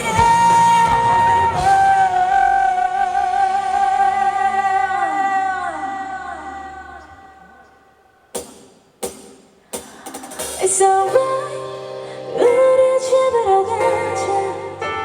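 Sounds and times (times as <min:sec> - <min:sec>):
pop backing track: 0:00.0 - 0:07.1, 0:08.4 - 0:15.0.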